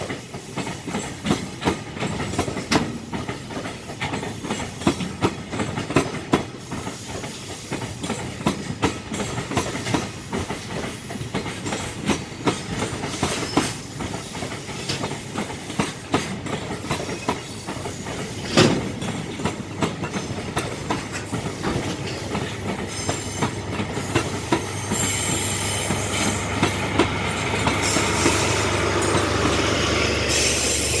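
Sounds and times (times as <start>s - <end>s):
diesel locomotive engine drone: 18.1s - 31.0s.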